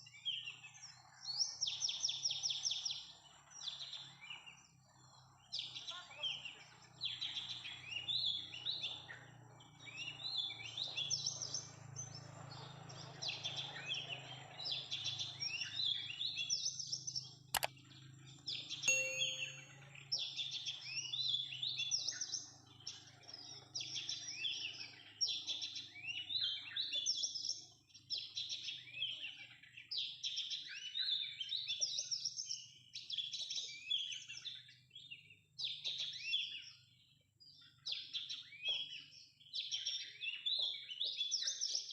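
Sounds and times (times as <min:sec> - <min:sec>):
birds chirping: 0:00.0 - 0:20.1
sharp click: 0:18.9 - 0:19.8.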